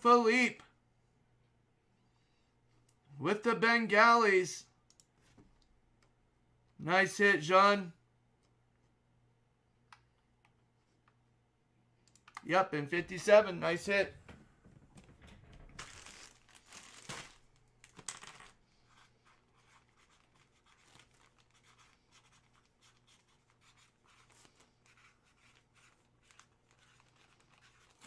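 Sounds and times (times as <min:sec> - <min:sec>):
crinkling rustles: 0:14.2 - 0:28.0.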